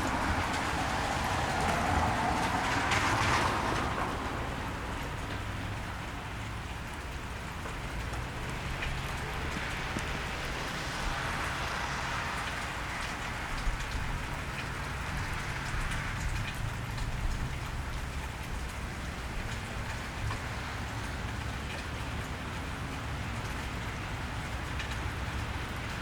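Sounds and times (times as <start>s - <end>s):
rain falling on a wet street: 0.0s - 26.0s
raindrops ticking on surfaces: 0.0s - 26.0s.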